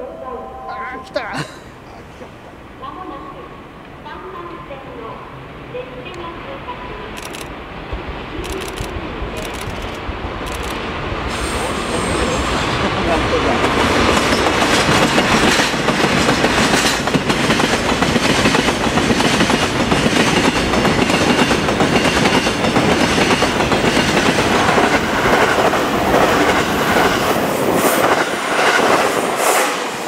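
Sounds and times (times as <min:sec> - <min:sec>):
steel wheels rumbling: 0:07.2 - 0:30.0
clickety-clack over rail joints: 0:12.8 - 0:27.4.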